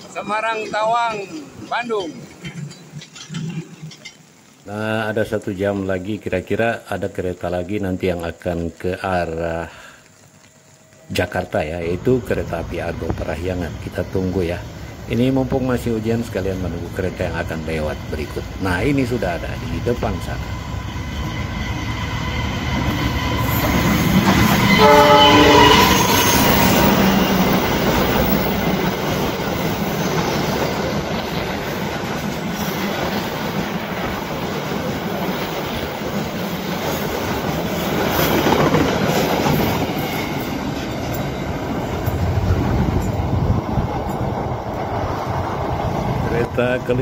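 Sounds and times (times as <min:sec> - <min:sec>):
train wheels rumbling on rails: 0:11.1 - 0:47.0
locomotive horn blast: 0:24.6 - 0:27.0.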